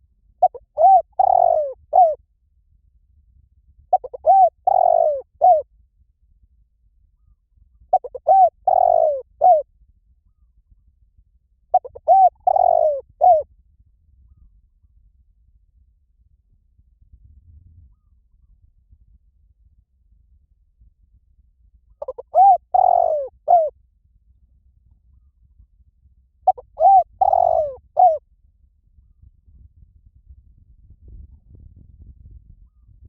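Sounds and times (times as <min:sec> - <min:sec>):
dove cooing: 0:00.4 - 0:02.2, 0:03.9 - 0:05.6, 0:07.9 - 0:09.6, 0:11.7 - 0:13.4, 0:22.0 - 0:23.7, 0:26.5 - 0:28.2.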